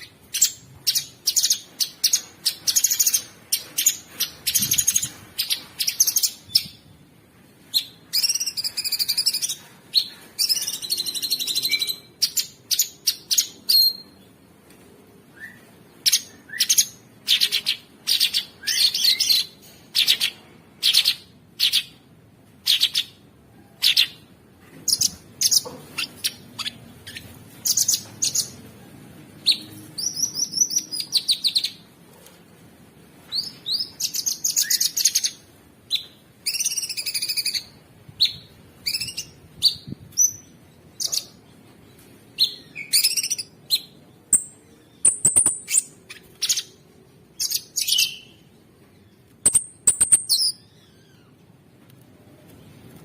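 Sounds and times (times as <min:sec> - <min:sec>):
songbird chirping and trilling: 0:07.8 - 0:14.3, 0:15.4 - 0:22.0, 0:29.4 - 0:31.8, 0:33.3 - 0:51.4.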